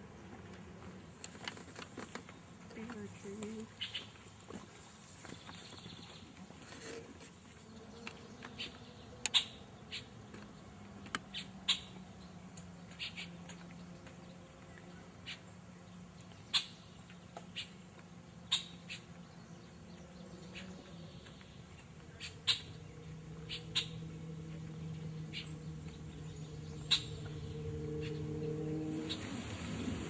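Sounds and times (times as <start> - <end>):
low steady hum: 12.0 - 30.0.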